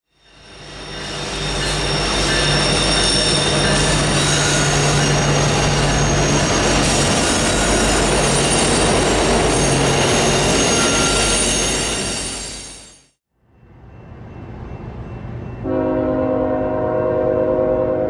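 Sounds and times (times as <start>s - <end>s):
train wheels rumbling on rails: 0.1s - 13.0s
wheels squealing: 0.2s - 13.0s.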